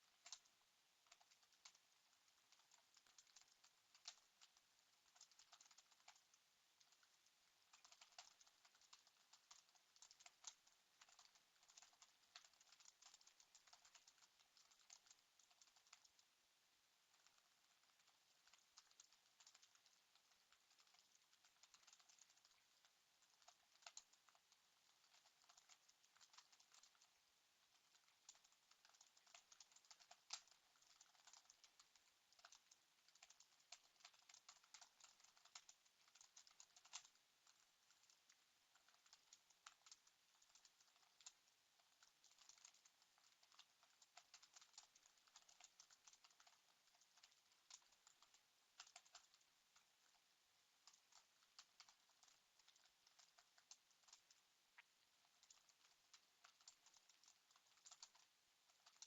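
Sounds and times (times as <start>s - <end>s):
faint rapid keyboard typing: 0.0s - 59.0s.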